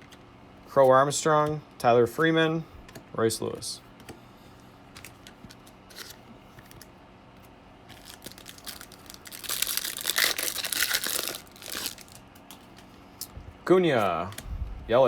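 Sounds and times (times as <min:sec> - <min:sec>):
cards rustling and clicking: 0:04.9 - 0:13.3, 0:13.9 - 0:14.5
plastic wrapper tearing and crinkling: 0:07.9 - 0:12.3.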